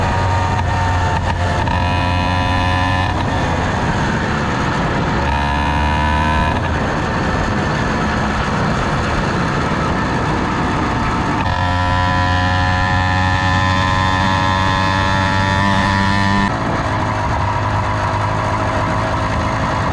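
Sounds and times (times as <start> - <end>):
two-stroke engine running: 0.0 - 19.9.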